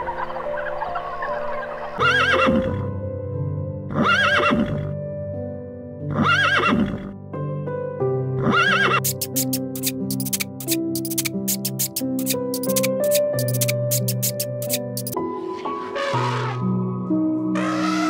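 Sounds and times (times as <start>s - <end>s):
background music: 0.0s - 18.0s
horse whinnying: 3.9s - 4.9s, 6.1s - 7.1s, 8.4s - 9.2s, 15.7s - 16.6s.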